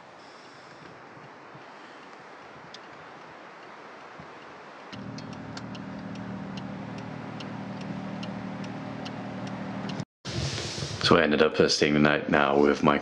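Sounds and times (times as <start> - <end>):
faint hiss: 0.0 - 5.1
light ticking: 4.4 - 10.0
motor hum: 5.0 - 10.0.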